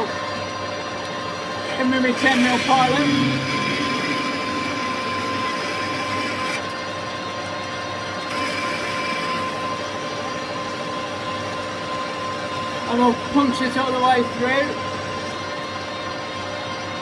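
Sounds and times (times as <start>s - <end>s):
metal lathe humming: 1.3s - 6.9s, 8.2s - 15.5s.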